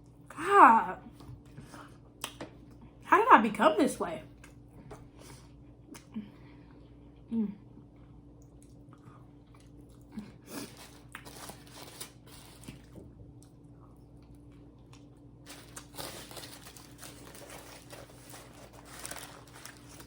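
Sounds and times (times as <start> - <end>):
person chewing crunchy food: 7.9 - 20.0.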